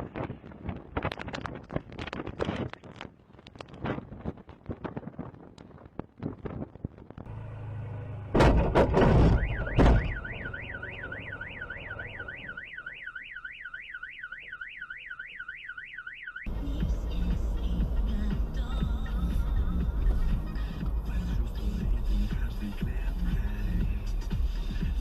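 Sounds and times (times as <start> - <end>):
loud collision impacts: 8.3 - 10.4
car alarm wailing: 9.0 - 16.5.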